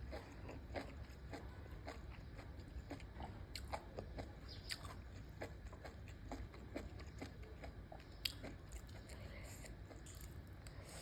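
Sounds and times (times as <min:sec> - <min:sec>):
chewing with wet mouth clicks: 0:00.0 - 0:11.0.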